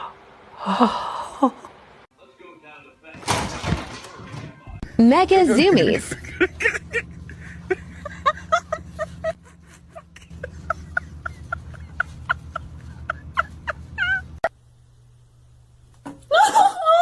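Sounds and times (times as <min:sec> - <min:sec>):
steady low hum: 0:04.8 - 0:16.1.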